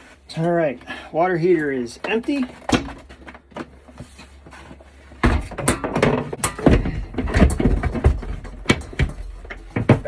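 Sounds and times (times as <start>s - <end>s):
knocks and clunks of water heater: 5.2s - 10.0s.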